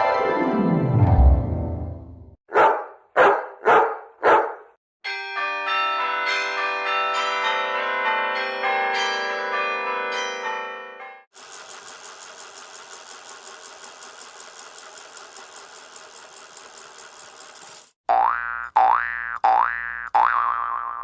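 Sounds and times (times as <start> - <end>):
dog barking: 2.5 - 4.8
church bells ringing: 5.1 - 11.2.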